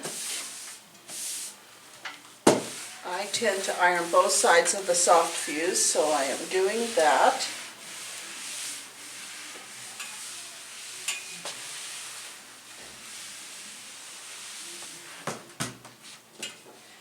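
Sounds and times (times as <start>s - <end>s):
iron sliding over fabric: 2.7s - 14.8s.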